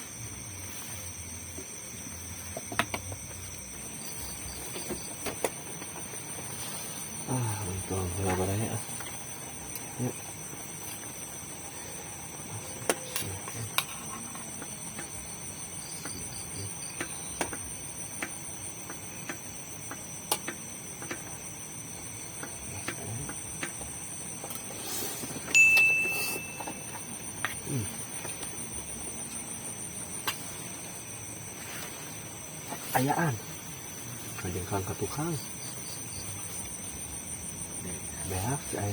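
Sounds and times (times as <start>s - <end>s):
night insect chorus: 0.0s - 38.9s
small clicks and knocks: 18.2s - 21.4s
short high-pitched tone: 25.6s - 26.9s.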